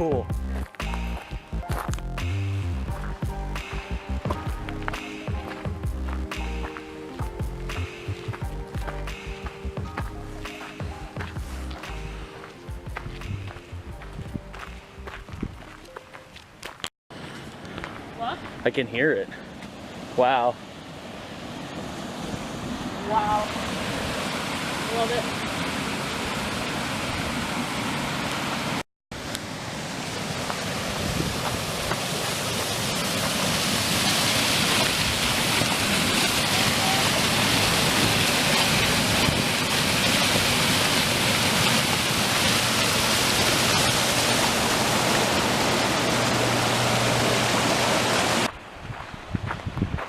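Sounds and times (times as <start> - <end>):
waterfall rushing: 21.7 - 48.5.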